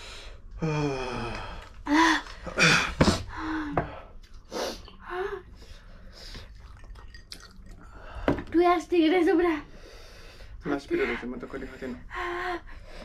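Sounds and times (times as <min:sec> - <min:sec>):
people gasping and hissing breaths: 0:00.0 - 0:06.5.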